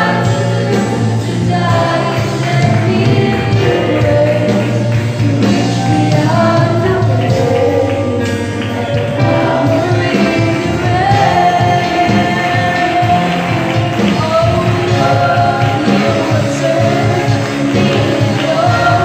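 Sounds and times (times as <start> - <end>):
choir singing gospel: 0.0 - 19.0
live band accompaniment: 0.0 - 19.0.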